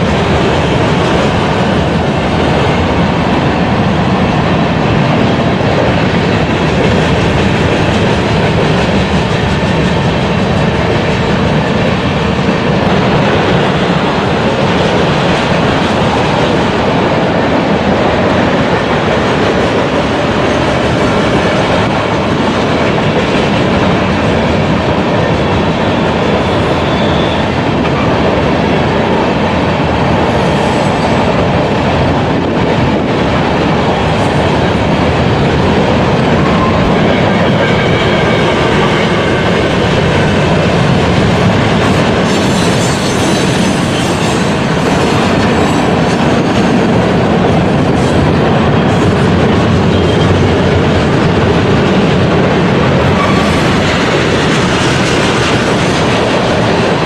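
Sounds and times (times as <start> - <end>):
freight train wheels on rails: 0.0 - 57.0
faint high wheel squeals: 25.8 - 27.5.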